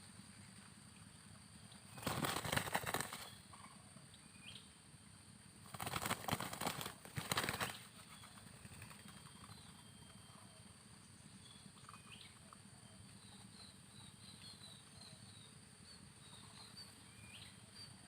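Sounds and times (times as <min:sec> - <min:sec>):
bird wings flapping: 0:01.9 - 0:03.4, 0:05.6 - 0:09.6.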